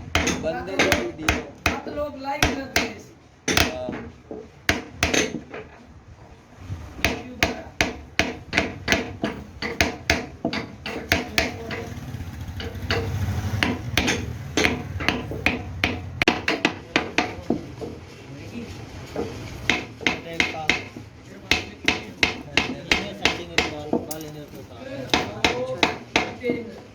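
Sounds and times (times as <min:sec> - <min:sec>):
hammer blows: 0:06.9 - 0:18.0.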